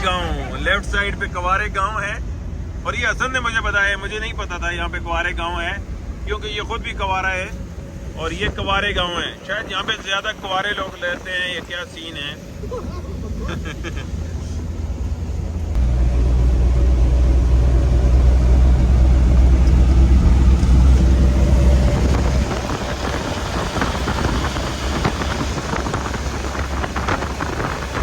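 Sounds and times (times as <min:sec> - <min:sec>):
road and engine noise: 0:00.0 - 0:28.0
deep rumble: 0:12.4 - 0:28.0.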